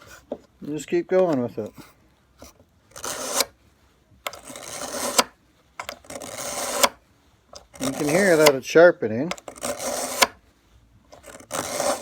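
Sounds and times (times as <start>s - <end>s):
knife sharpener rasping on blade: 3.0s - 3.5s, 4.3s - 5.3s, 6.1s - 7.0s, 7.8s - 8.6s, 9.4s - 10.4s, 11.2s - 12.0s.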